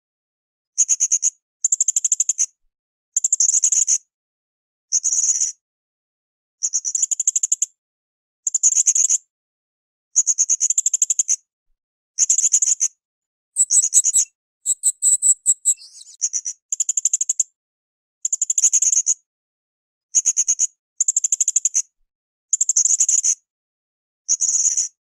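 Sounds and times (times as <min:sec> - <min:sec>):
parrot chattering trills: 0:13.6 - 0:16.2.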